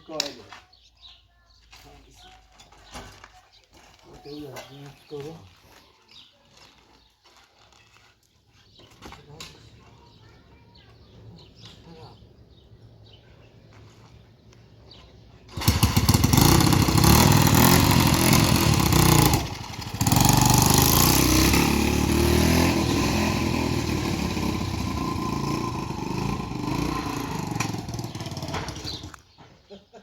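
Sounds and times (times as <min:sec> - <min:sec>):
motorcycle engine running: 0:15.5 - 0:29.2.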